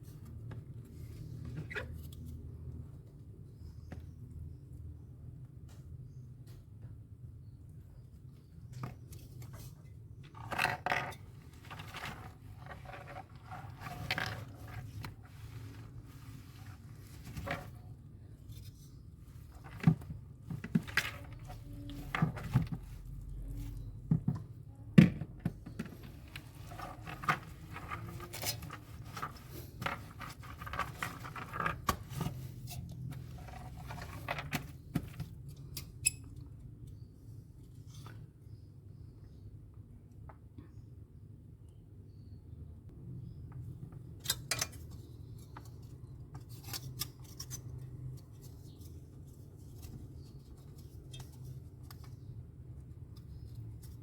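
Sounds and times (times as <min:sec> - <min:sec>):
scraping and clicks of hand work: 0:25.2 - 0:38.3, 0:43.8 - 0:54.0.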